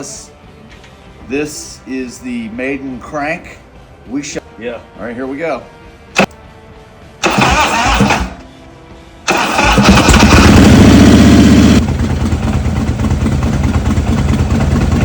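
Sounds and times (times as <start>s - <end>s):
motorcycle starter cranking: 7.2s - 8.4s, 9.3s - 12.4s
motorcycle engine running: 9.6s - 15.0s.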